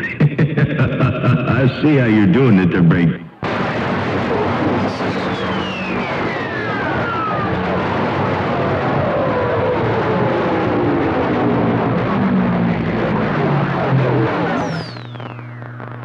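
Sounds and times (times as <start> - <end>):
radio static: 0.0 - 10.1, 10.8 - 16.0
steady low hum: 0.0 - 16.0
whistling tones sliding downward: 4.8 - 11.6, 14.1 - 15.8.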